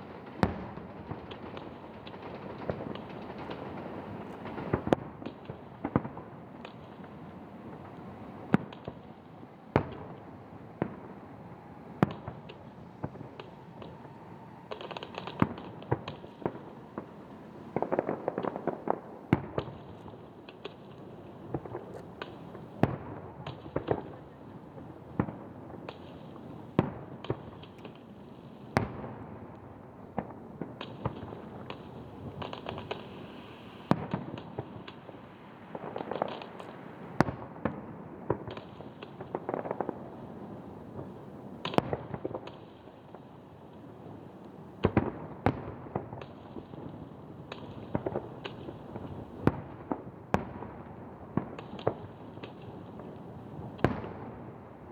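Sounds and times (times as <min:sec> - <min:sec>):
fireworks crackling: 0:00.0 - 0:54.9
fireworks shells booming: 0:00.4 - 0:24.2.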